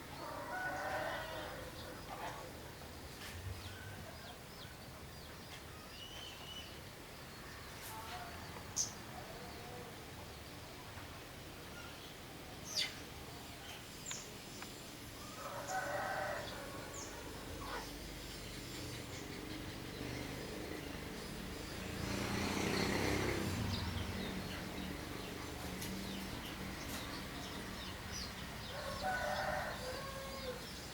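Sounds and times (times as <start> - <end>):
rooster crowing: 0.1 - 2.0, 15.2 - 17.4, 28.6 - 30.8
small birds chirping: 1.0 - 30.9.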